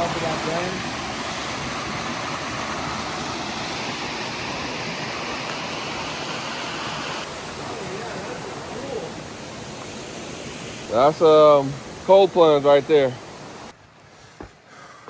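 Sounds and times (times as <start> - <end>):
stream flowing over rocks: 0.0 - 14.7.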